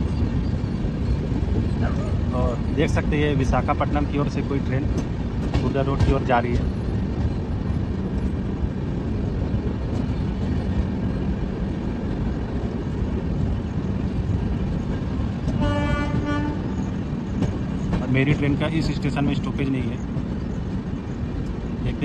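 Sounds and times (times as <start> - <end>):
passenger train rumbling: 0.0 - 22.0
train horn: 15.5 - 16.7.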